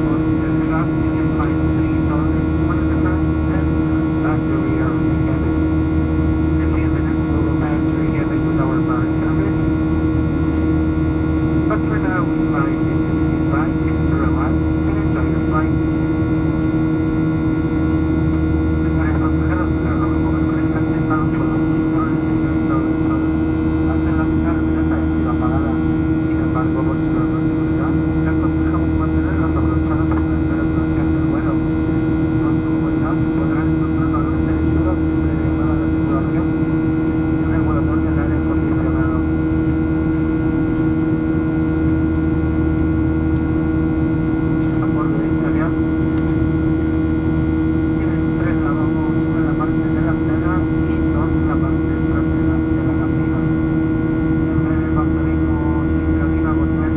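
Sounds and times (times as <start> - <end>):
airplane cabin engine drone: 0.0 - 56.9
steady hum: 0.0 - 56.9
faint voices: 18.8 - 31.6, 32.4 - 36.5, 37.4 - 39.3, 47.9 - 53.5, 54.5 - 56.9.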